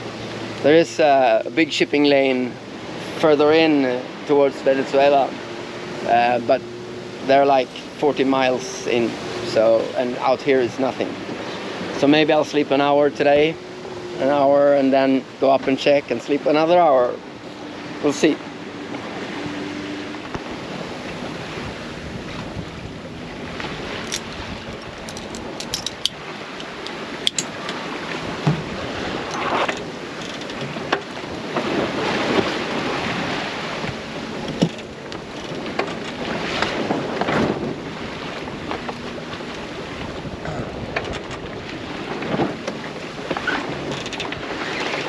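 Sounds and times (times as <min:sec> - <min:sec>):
water rushing along hull: 0:00.0 - 0:45.0
wind noise: 0:19.0 - 0:45.0.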